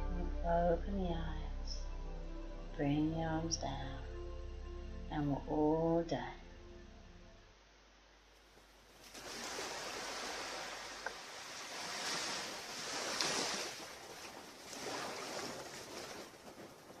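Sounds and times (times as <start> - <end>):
surf washing on beach: 9.0 - 17.0.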